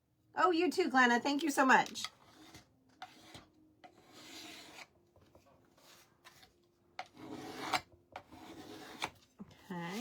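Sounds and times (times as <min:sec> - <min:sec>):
scraping paint on wooden board: 0:02.2 - 0:04.9, 0:07.0 - 0:09.2.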